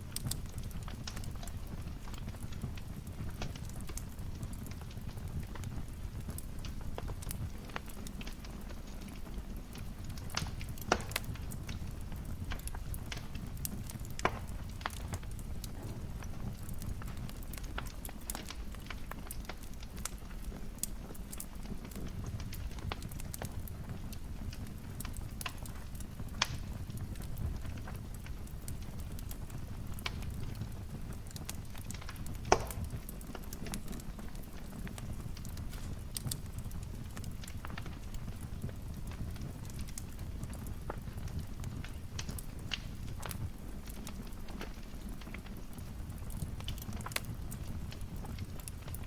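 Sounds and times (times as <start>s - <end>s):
low rumble of burning: 0.0s - 49.0s
wood fire crackling: 0.0s - 49.0s
sharp fire pops: 9.8s - 49.0s.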